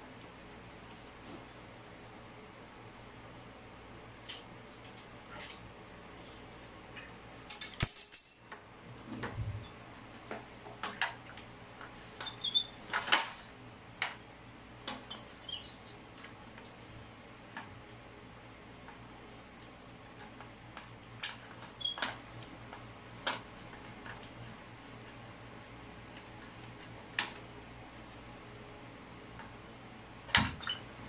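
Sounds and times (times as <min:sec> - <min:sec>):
metallic clinks of plumbing tools: 0:07.5 - 0:08.9.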